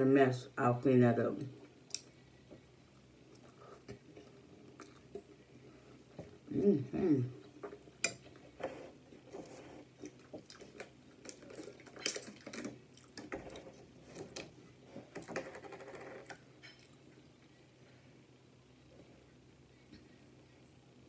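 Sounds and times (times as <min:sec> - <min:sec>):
chewing and mouth sounds: 0:02.9 - 0:05.5, 0:09.1 - 0:14.3.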